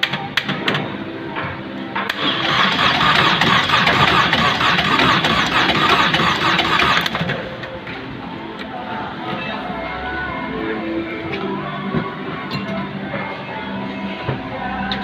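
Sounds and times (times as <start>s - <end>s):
car engine starting and idling: 2.1s - 7.6s.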